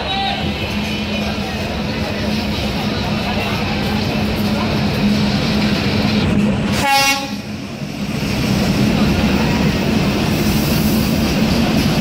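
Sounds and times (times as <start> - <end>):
diesel locomotive rumble: 0.0 - 12.0
train horn toot: 6.8 - 7.5.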